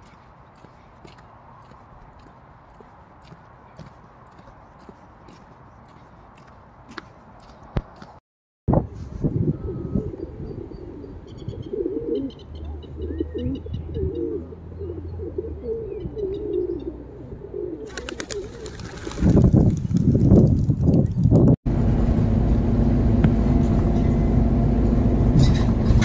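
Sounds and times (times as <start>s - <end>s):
low wavering bird calls: 9.5s - 18.7s.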